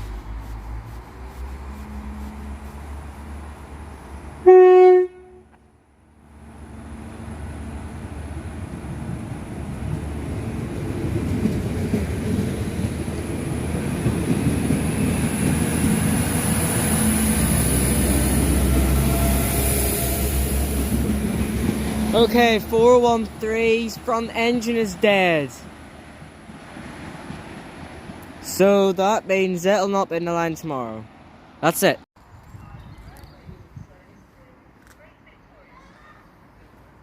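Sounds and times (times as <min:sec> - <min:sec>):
train engine and wheel rumble: 0:00.0 - 0:37.0
train horn blast: 0:04.4 - 0:05.6.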